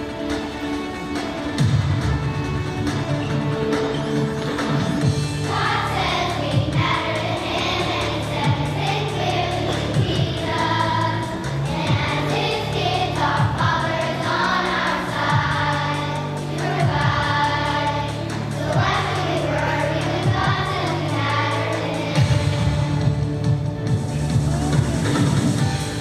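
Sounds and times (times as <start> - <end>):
instrumental accompaniment: 0.0 - 26.0
group singing: 5.4 - 23.0.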